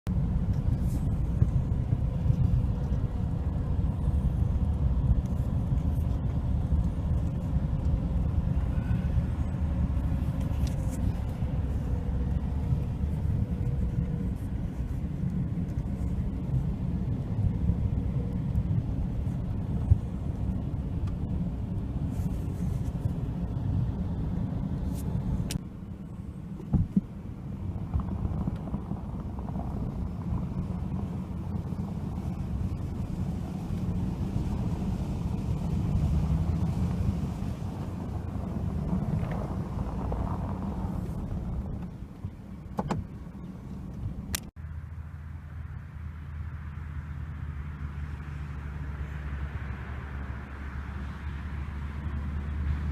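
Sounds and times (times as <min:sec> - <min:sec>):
wind buffeting microphone: 0:26.6 - 0:44.3.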